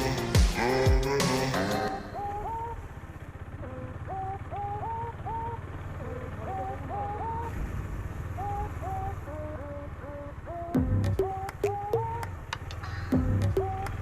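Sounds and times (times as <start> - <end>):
birds calling: 0.0 - 14.0
low rumble: 12.8 - 13.7.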